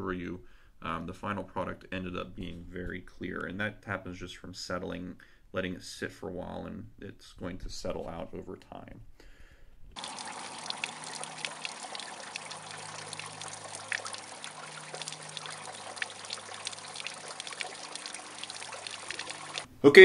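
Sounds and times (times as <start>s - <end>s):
water pouring from pipe: 10.0s - 19.7s.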